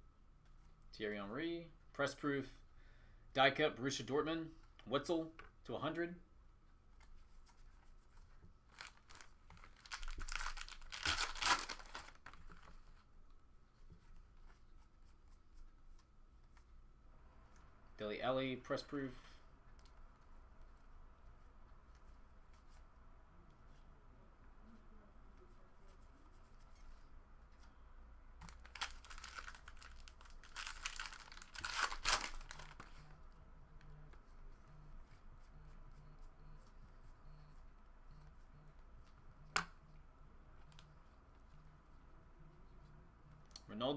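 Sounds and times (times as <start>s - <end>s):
foil wrapper tearing and crinkling: 8.7s - 12.4s, 28.5s - 32.9s.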